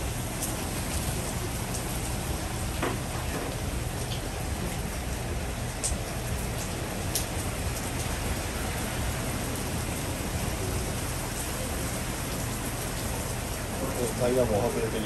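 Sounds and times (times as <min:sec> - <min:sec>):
heavy rain pouring: 0:00.0 - 0:15.0
light tick: 0:05.8 - 0:06.0.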